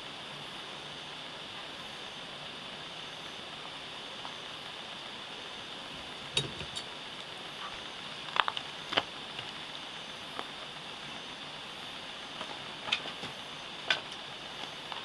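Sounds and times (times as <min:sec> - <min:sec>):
campfire hissing: 0:00.0 - 0:15.0
wood crackling and popping: 0:06.0 - 0:09.7, 0:12.2 - 0:15.0.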